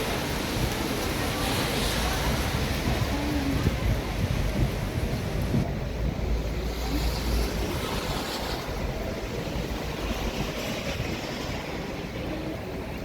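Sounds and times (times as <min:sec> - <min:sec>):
rain hissing: 0:00.0 - 0:05.8
traffic rumbling: 0:00.0 - 0:13.0.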